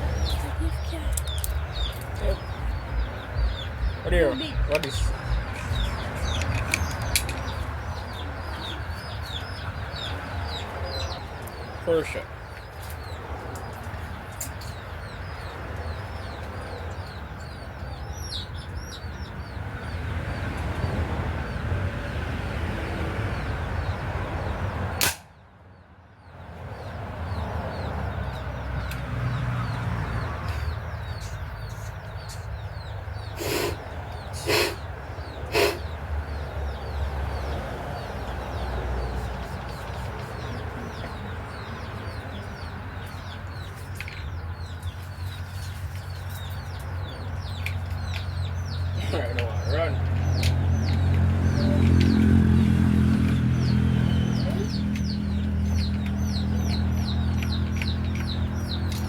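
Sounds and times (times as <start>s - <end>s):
steady low rumble: 0.0s - 11.3s
small birds chirping: 0.0s - 59.0s
air rifle shot: 25.0s - 25.3s.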